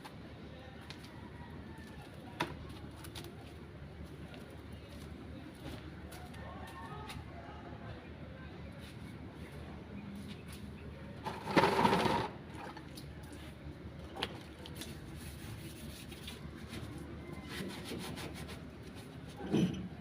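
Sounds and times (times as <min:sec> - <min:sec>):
scraping and rubbing: 0:14.8 - 0:19.9.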